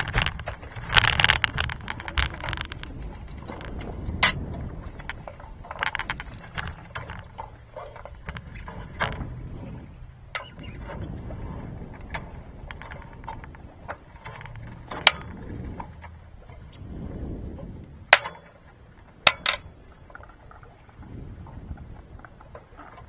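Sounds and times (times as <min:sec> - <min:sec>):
water rumbling: 0:00.0 - 0:23.0
wind: 0:00.0 - 0:23.0
sharp knocks: 0:18.2 - 0:18.5.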